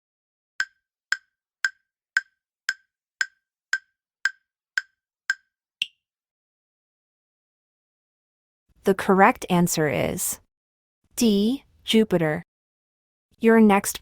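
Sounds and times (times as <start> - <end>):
sharp clock-like ticks: 0.6 - 5.5
higher-pitched tick: 0.6 - 6.0.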